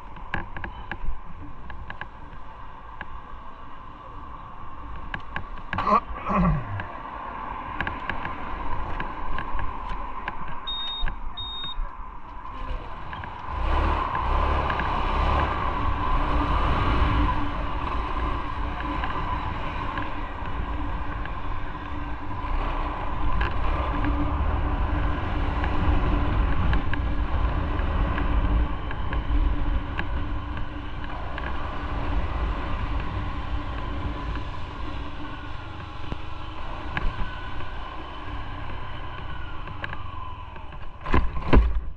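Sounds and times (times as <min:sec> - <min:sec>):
road and wind noise: 0:00.0 - 0:41.9
short high beeps: 0:10.7 - 0:11.8.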